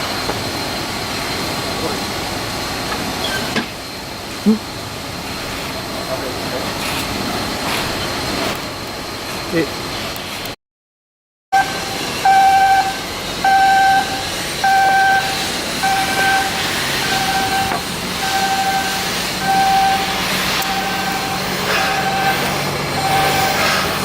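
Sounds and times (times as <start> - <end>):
heavy machinery noise: 0.0 - 10.5, 11.6 - 24.0
warning beeper: 11.6 - 24.0.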